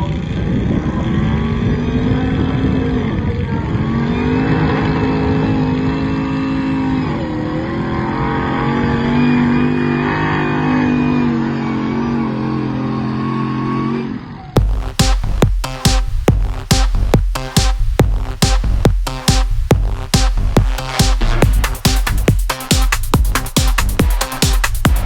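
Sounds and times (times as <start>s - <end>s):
engine running hard under load: 0.0s - 14.7s.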